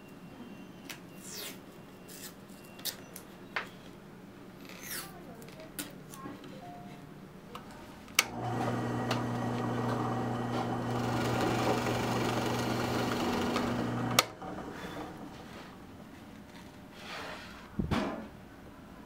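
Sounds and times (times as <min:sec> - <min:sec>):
electric power tool humming: 0:08.2 - 0:15.2.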